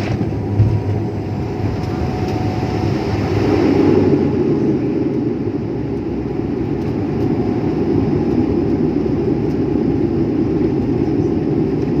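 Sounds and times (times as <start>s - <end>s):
airplane landing rumble: 0.0s - 12.0s.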